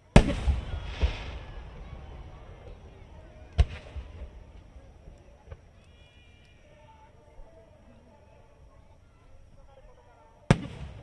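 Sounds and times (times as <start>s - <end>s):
firework bang: 0.0s - 8.7s
firework burst rumble: 0.0s - 8.8s
small firework pop: 0.0s - 8.8s
firework crackle: 0.0s - 11.0s.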